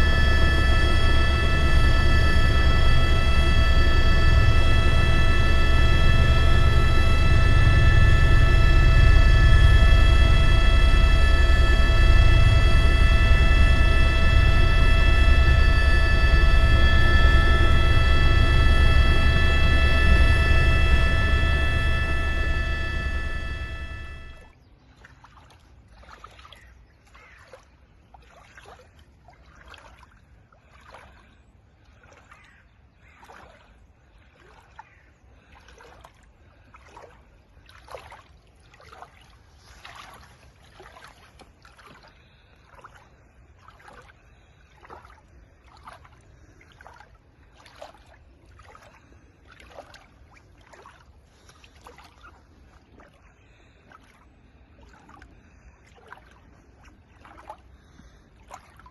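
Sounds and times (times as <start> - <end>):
low rumble: 0.0 - 24.6
water splashing rhythmically: 24.4 - 58.9.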